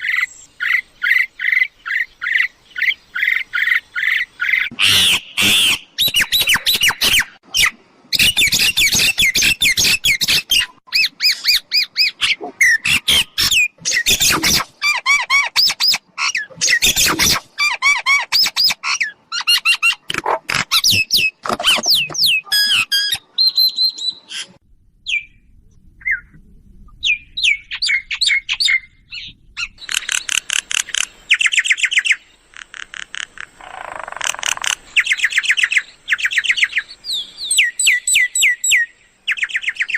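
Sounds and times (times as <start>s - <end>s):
birds chattering and whistling: 20.7s - 25.4s.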